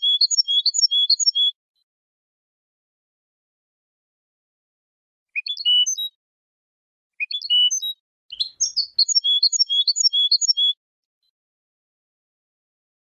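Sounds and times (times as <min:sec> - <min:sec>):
goldfinch singing: 0:00.0 - 0:01.5, 0:05.4 - 0:06.1, 0:07.2 - 0:10.8.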